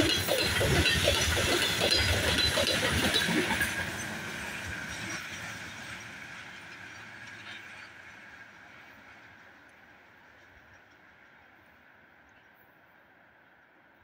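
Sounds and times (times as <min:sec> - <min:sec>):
train rolling hiss: 0:00.0 - 0:07.8
train wheels clattering over rail joints: 0:00.0 - 0:08.5.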